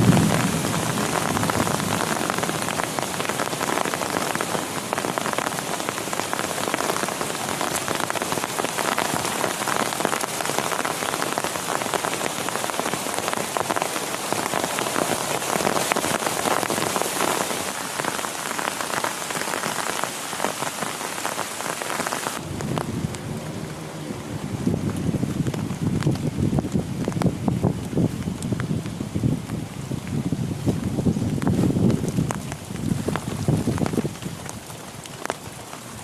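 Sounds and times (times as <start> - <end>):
heavy rain pattering: 0.0 - 36.0
dull low rumbling noise: 22.4 - 34.0.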